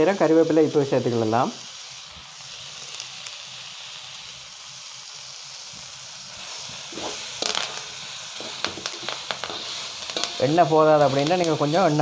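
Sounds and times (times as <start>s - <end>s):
food sizzling in oil: 0.0s - 12.0s
ladle scraping and knocking pan: 6.9s - 10.5s.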